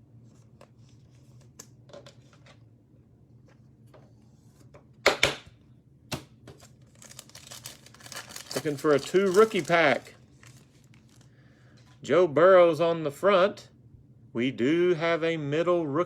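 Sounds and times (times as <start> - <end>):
wrapper crinkling: 6.5 - 11.4.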